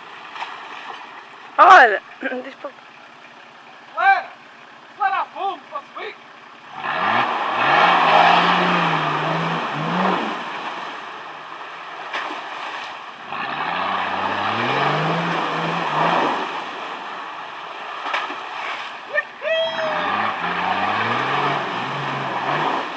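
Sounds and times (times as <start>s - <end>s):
water rushing from wheels: 0.0s - 22.9s
diesel engine revving under load: 3.0s - 11.6s, 13.2s - 18.5s, 19.6s - 22.9s.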